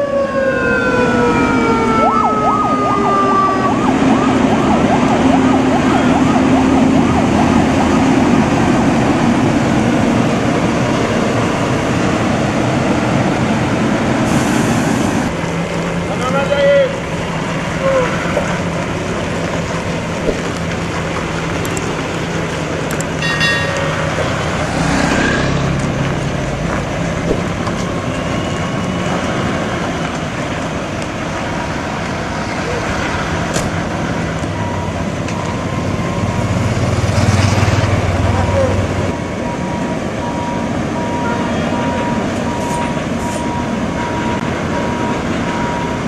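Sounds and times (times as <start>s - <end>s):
emergency siren yelping: 0.0s - 10.1s, 38.0s - 46.0s
road and engine noise: 0.0s - 46.0s.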